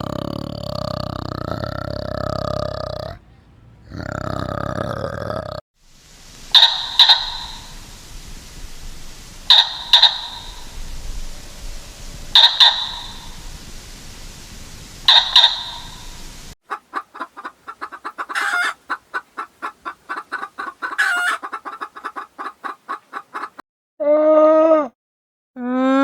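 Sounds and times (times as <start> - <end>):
chicken squawks: 6.5 - 7.7, 9.5 - 10.7, 12.4 - 13.2, 16.7 - 23.6
chicken clucking: 6.6 - 7.7, 16.7 - 23.6.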